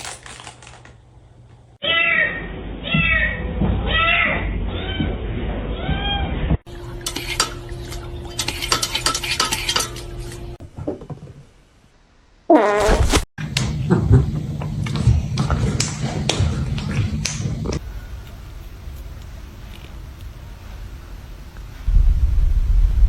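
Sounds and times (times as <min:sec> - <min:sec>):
cat meowing: 0:01.8 - 0:05.2
dishes clinking and clattering: 0:07.0 - 0:10.1.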